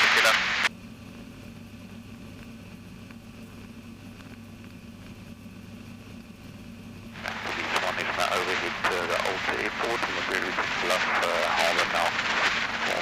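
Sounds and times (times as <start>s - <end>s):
faint two-stroke engine drone: 0.7s - 9.4s.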